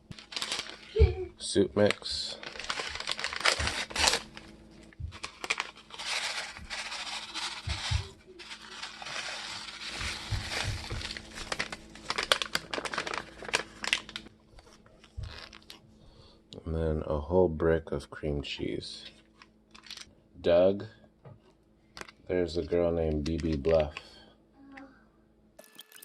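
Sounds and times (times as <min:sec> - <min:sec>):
packet crinkling and rustling: 0:00.0 - 0:15.8, 0:19.2 - 0:20.1, 0:21.9 - 0:24.1
packet tearing: 0:00.1 - 0:01.0, 0:01.8 - 0:04.5, 0:05.2 - 0:14.3.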